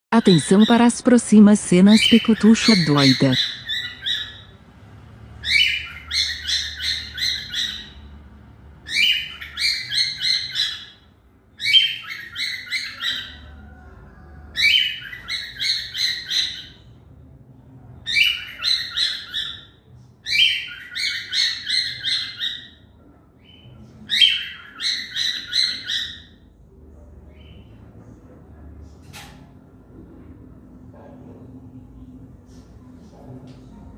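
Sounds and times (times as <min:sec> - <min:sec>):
cockatiel chirping: 0:05.4 - 0:08.0, 0:11.6 - 0:13.4.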